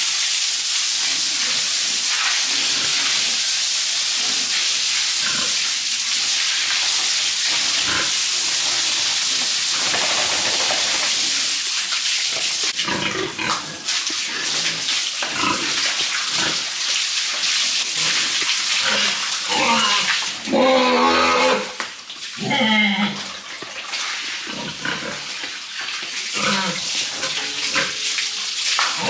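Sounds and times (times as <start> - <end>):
water spraying and splashing: 0.0 - 29.0
pigs calling: 7.5 - 11.6, 17.8 - 21.8.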